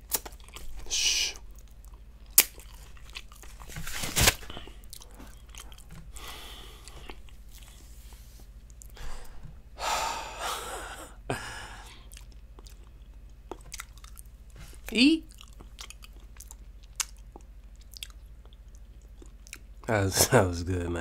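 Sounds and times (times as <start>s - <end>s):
wet chewing: 0.0s - 3.8s, 4.5s - 7.9s, 12.0s - 19.8s.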